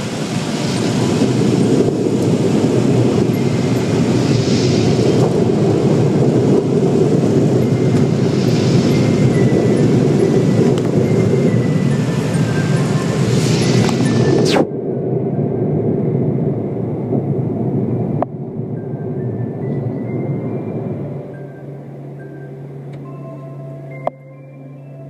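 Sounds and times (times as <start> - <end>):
bright hiss of car wash: 0.0 - 14.6
car wash rumble: 0.0 - 24.0.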